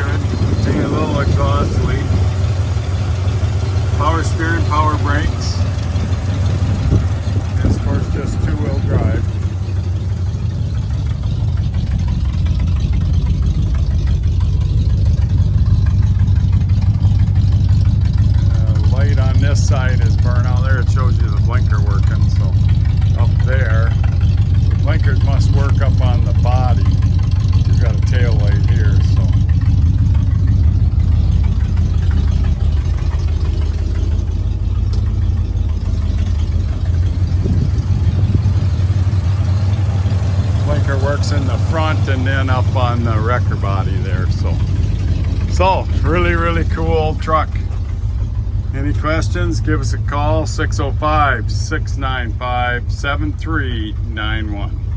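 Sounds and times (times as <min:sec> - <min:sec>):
exhaust leak: 0:00.0 - 0:54.9
truck engine idling: 0:00.0 - 0:54.9.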